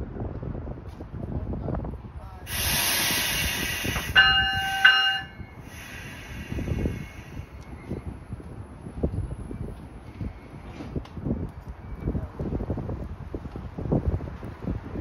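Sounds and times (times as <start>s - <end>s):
train compressed-air hiss: 2.5s - 7.8s
train horn blasts: 3.9s - 5.4s.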